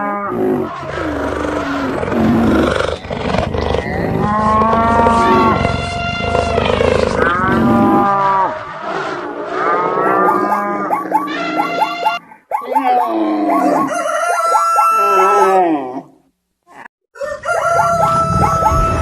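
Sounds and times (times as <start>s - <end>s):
long pitched animal calls: 0.0s - 16.0s
low stampede rumbling: 0.7s - 9.8s.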